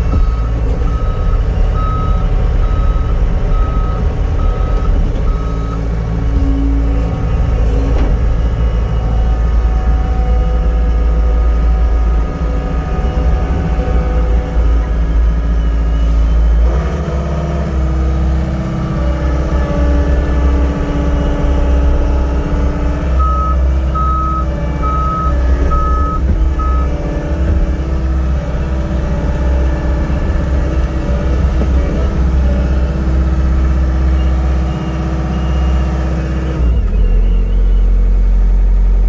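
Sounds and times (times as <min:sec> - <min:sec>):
diesel engine running: 0:00.0 - 0:39.0
reverse alarm beeping: 0:23.2 - 0:26.9.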